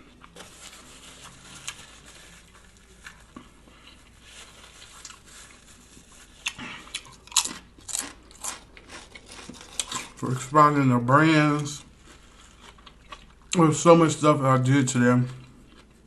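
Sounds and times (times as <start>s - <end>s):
crisp crunches of chewing: 0.0s - 10.5s, 11.3s - 13.8s, 14.9s - 16.0s
mouth chewing sounds: 6.4s - 10.2s, 11.6s - 13.6s, 15.2s - 16.0s.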